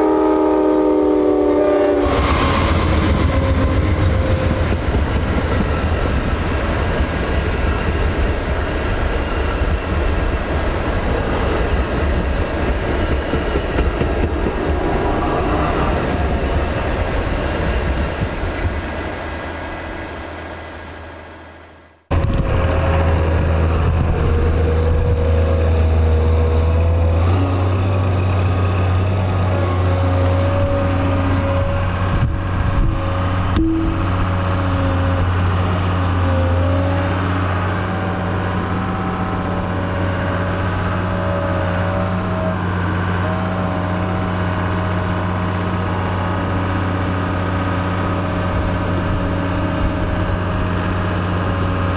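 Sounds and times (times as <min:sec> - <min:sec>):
wavering whine: 0:00.0 - 0:19.0, 0:28.6 - 0:51.9
passing train: 0:00.0 - 0:51.9
diesel engine running: 0:22.1 - 0:51.9.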